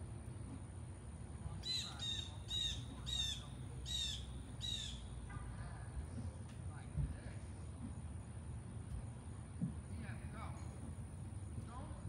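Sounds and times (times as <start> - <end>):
bird chirping: 1.6 - 5.1.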